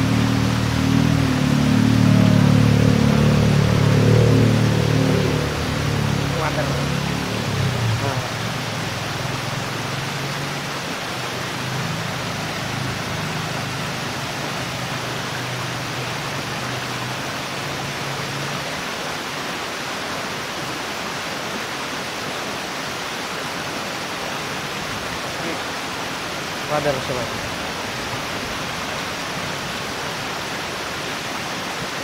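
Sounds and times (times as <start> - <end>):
low hum: 0.0 - 10.5
rushing water: 0.0 - 32.0.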